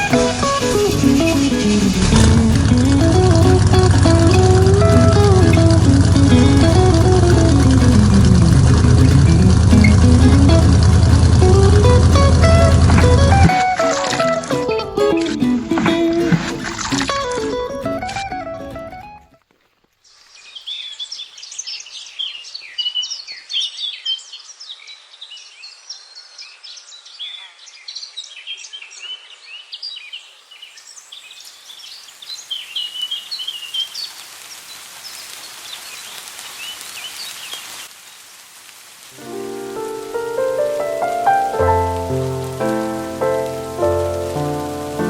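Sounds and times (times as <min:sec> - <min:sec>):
steady hiss: 0:00.0 - 0:17.7, 0:19.6 - 0:22.8, 0:30.2 - 0:45.0
small birds chirping: 0:20.0 - 0:38.4.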